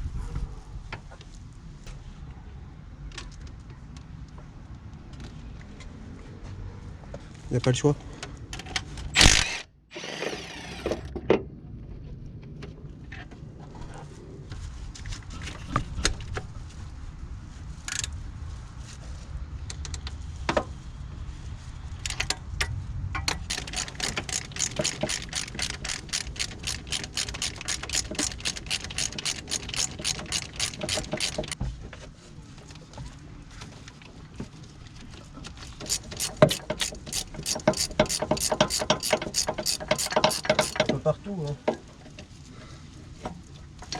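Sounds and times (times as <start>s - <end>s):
ratchet wrench clicking: 9.2s - 9.6s, 23.5s - 31.6s, 35.6s - 40.9s
clinks of tools and metal parts: 35.6s - 41.0s.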